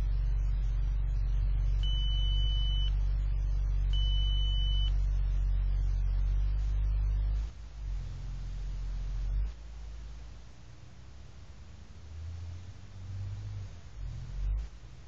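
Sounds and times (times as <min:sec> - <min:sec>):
high beeps: 0:00.0 - 0:07.4.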